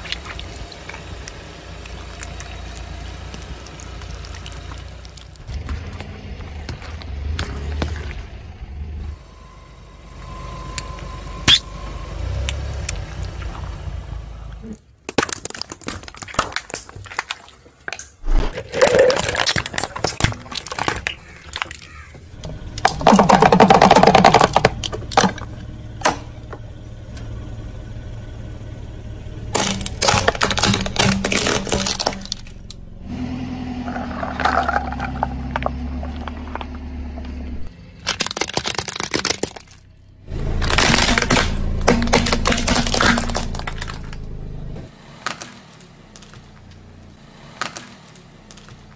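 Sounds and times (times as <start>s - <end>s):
objects cracking under car tyres: 0.0s - 8.4s, 14.8s - 26.6s, 29.5s - 32.9s, 33.8s - 48.9s
car engine hum: 0.0s - 15.0s, 17.2s - 48.9s.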